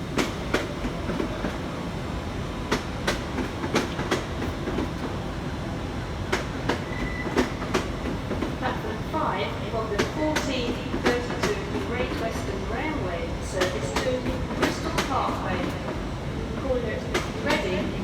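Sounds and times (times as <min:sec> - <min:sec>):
train wheels clicking over rail joints: 0:00.0 - 0:01.7, 0:02.7 - 0:05.2, 0:06.2 - 0:08.6, 0:13.5 - 0:16.0, 0:17.1 - 0:17.9
train rumble: 0:00.0 - 0:18.0.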